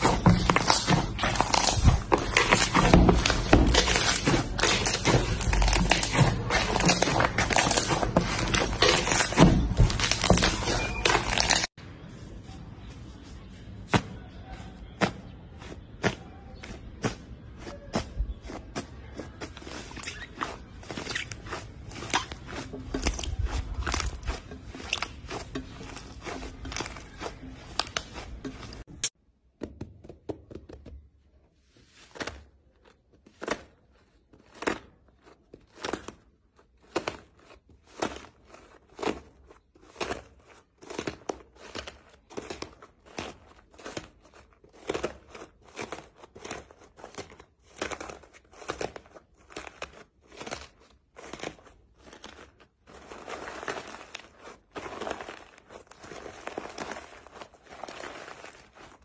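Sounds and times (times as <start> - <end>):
slime squeezed crackling and popping: 0.0 - 11.7.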